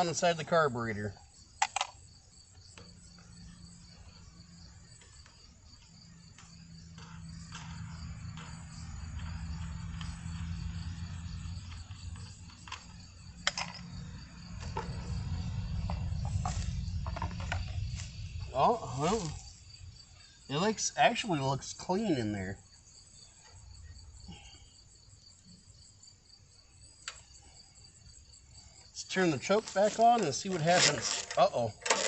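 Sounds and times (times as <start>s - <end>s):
crickets chirping: 0.0s - 32.0s
low engine hum: 6.1s - 19.9s.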